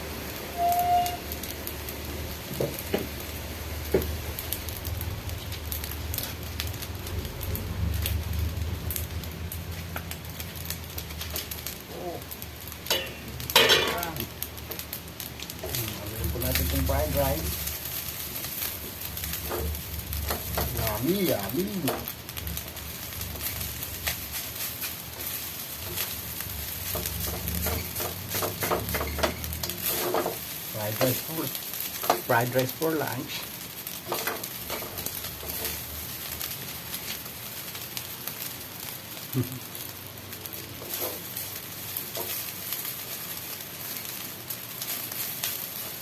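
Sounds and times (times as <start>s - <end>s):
food frying in a pan: 0.0s - 46.0s
spatula scraping a pan: 26.9s - 30.4s.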